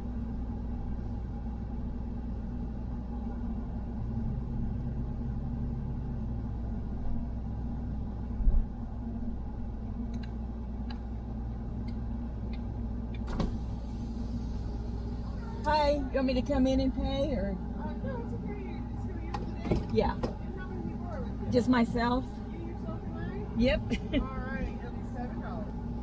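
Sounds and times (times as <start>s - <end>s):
engine and road hum: 0.0s - 26.0s
thump: 13.3s - 13.6s.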